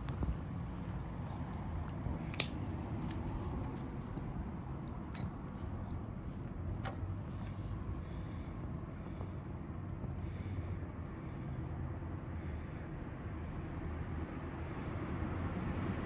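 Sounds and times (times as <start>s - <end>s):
crackling pops: 0.0s - 12.4s
wood fire burning: 0.0s - 16.0s.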